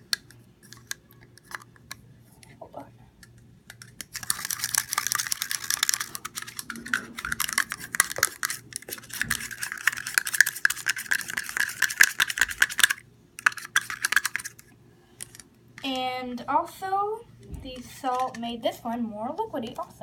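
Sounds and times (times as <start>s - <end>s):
utensil stirring in a bowl: 3.7s - 14.6s.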